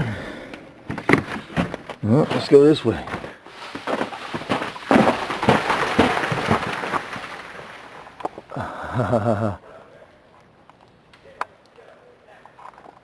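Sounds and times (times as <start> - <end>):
ice crunching and crackling: 1.1 - 8.5.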